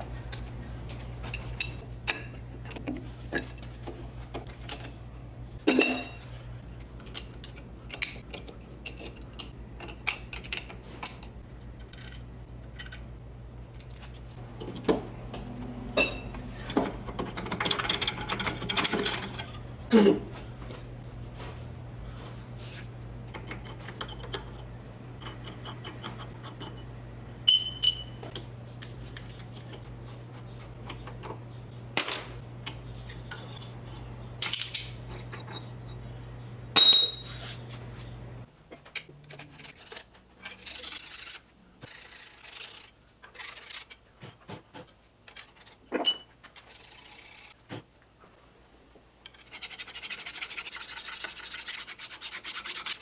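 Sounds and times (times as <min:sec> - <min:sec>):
steady low hum: 0:00.0 - 0:39.3
metal tools clinking on engine parts: 0:01.2 - 0:02.4, 0:14.4 - 0:19.8, 0:23.3 - 0:28.5, 0:29.2 - 0:36.2, 0:36.8 - 0:37.5
scraping and rubbing: 0:13.9 - 0:27.1, 0:39.2 - 0:45.9, 0:46.5 - 0:47.8, 0:49.3 - 0:53.0.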